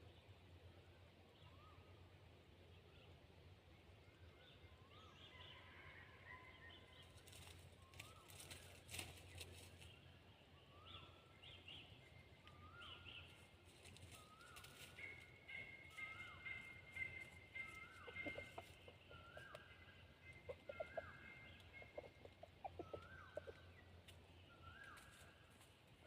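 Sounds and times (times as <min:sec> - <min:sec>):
small birds chirping: 0:10.7 - 0:25.6.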